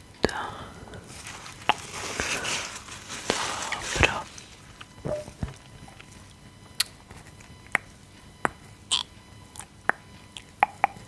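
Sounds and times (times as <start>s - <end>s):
gum chewing mouth clicks: 4.8s - 11.0s.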